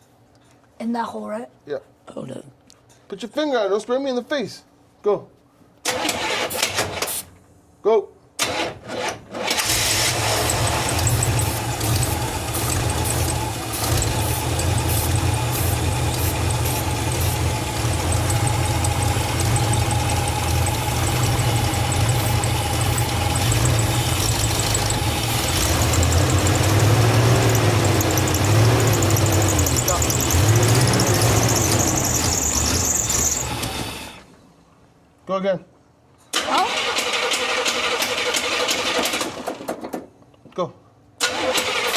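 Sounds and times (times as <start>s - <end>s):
engine turning over: 5.9s - 7.2s, 8.4s - 34.4s, 36.4s - 39.9s, 41.2s - 41.9s
regular mechanical ticking: 10.1s - 33.8s.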